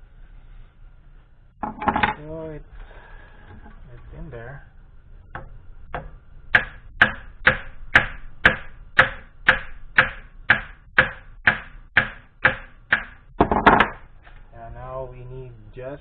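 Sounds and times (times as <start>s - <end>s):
hammer tapping metal: 5.3s - 14.1s.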